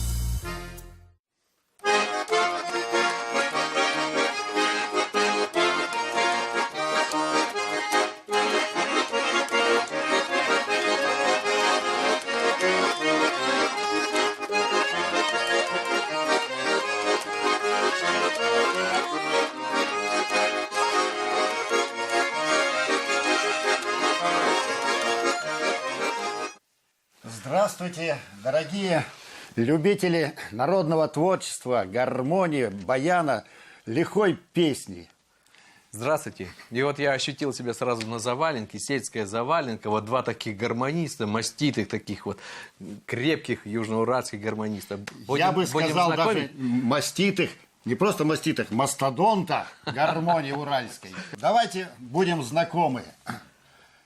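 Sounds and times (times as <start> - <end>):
accordion playing folk tune: 0.0 - 1.2, 1.8 - 26.7, 44.7 - 48.6, 49.2 - 52.8.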